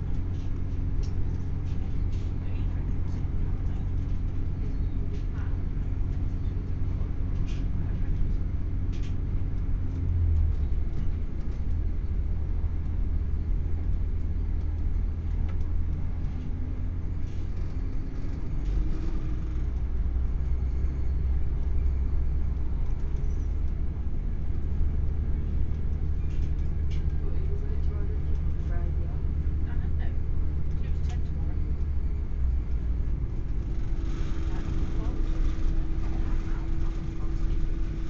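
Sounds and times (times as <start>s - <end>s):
train rumble inside carriage: 0.0s - 38.0s
faint track clicks: 17.2s - 29.6s, 30.6s - 38.0s.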